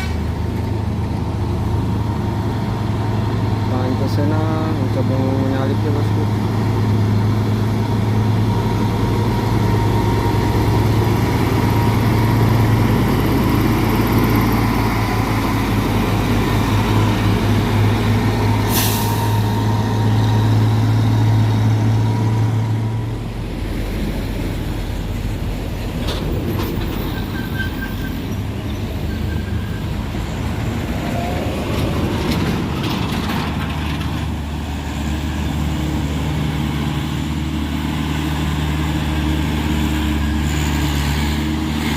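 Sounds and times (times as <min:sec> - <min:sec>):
other engines running: 0:00.0 - 0:27.4, 0:28.2 - 0:41.9
diesel truck engine labouring: 0:00.0 - 0:41.9
short sharp hiss: 0:18.7 - 0:19.3.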